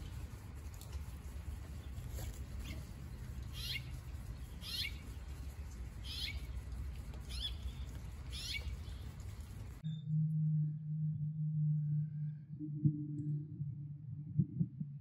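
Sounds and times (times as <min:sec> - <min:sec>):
low background rumble: 0:00.0 - 0:15.0
small bird chirping: 0:02.6 - 0:10.0.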